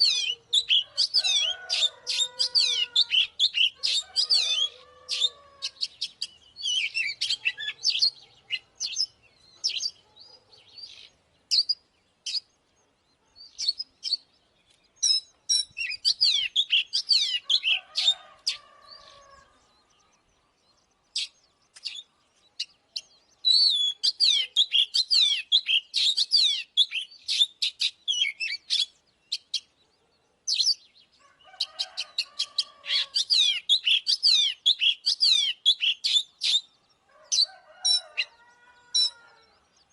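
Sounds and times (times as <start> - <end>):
bird singing whistled phrases: 23.5 - 28.9.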